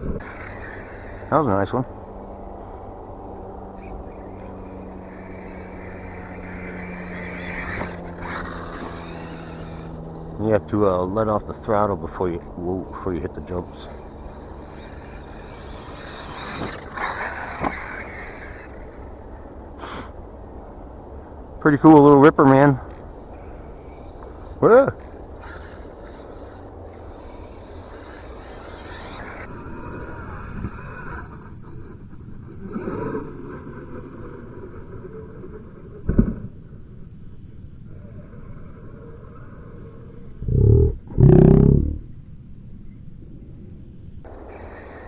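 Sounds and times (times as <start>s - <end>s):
electric motor and drivetrain running: 0.0s - 35.5s, 44.3s - 45.0s.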